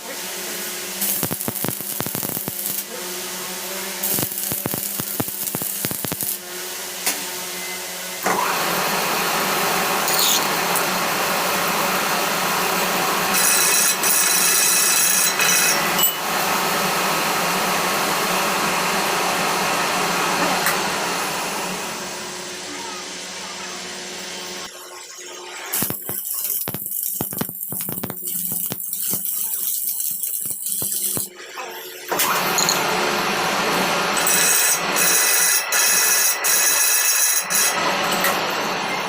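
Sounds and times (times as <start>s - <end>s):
power tool running: 0.0s - 7.1s, 8.2s - 22.7s, 32.0s - 39.0s.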